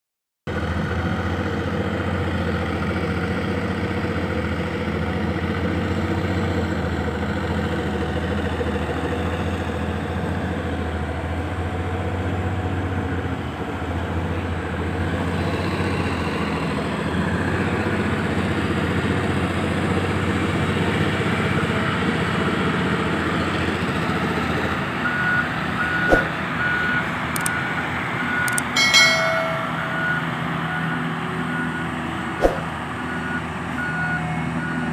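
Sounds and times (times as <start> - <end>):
dump truck engine running: 0.5 - 28.8, 29.9 - 34.9
sharp knock: 26.1 - 26.3, 32.4 - 32.6.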